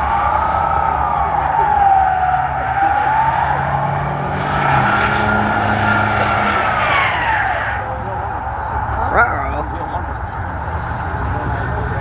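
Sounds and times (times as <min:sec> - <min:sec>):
engine at high revs: 0:00.0 - 0:08.4
tires squealing: 0:00.0 - 0:12.0.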